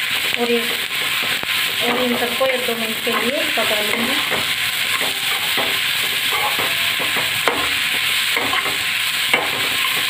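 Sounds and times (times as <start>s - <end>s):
masala sizzling in oil: 0.0s - 10.0s
metal spatula scraping pan: 1.8s - 10.0s
spatula clinking on pan: 3.9s - 10.0s.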